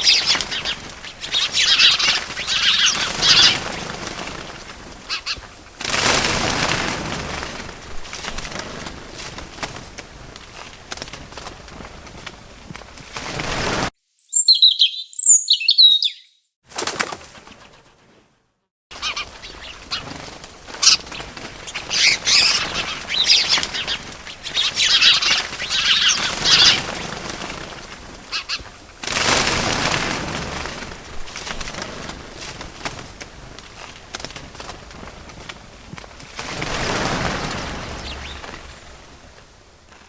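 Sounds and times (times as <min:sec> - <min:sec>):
small birds chirping: 0:00.0 - 0:05.7, 0:14.0 - 0:16.6, 0:18.9 - 0:28.9, 0:36.8 - 0:39.0
fluttering wing beats: 0:00.0 - 0:15.0, 0:16.7 - 0:18.2, 0:18.9 - 0:40.0.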